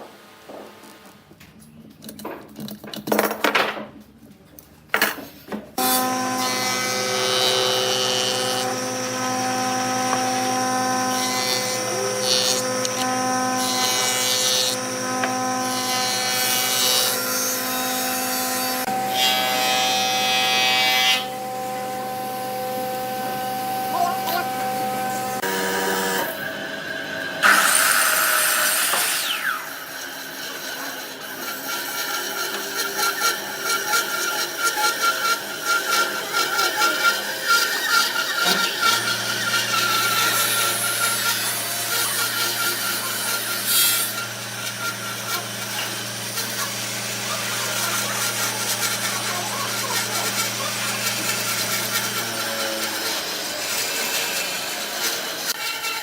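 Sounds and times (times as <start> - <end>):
wood lathe high tone: 5.8 - 56.0
tool scraping spinning wood: 21.2 - 56.0.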